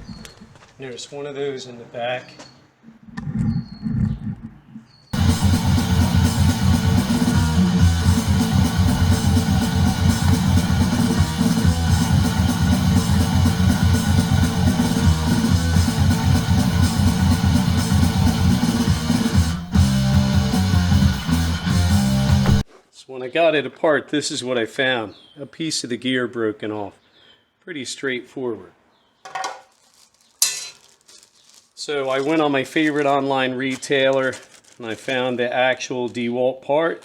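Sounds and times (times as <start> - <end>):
background music with guitar: 5.2 - 22.6.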